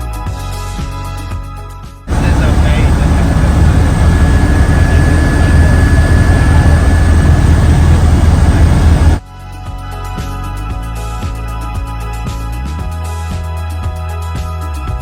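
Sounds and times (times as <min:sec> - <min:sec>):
helicopter engine and rotor: 0:02.1 - 0:09.2.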